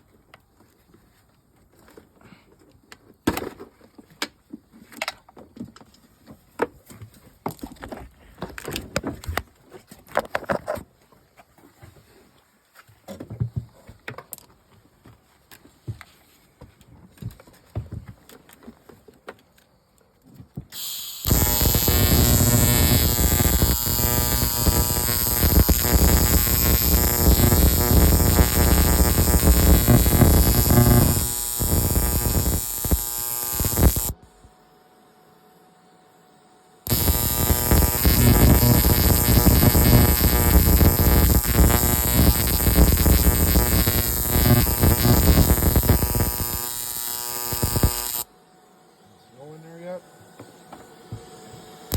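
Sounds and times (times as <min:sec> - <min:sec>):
arc welder buzzing crackle: 0:20.7 - 0:34.2, 0:36.8 - 0:48.3.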